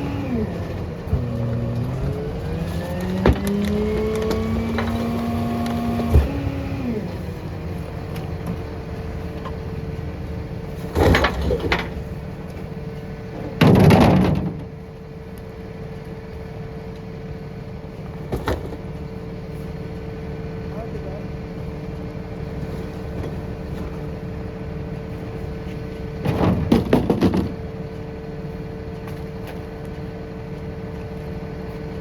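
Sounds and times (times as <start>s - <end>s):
garbage truck engine idling: 0.0s - 32.0s
crash of recycling: 10.8s - 12.0s, 13.5s - 14.7s, 26.2s - 27.7s.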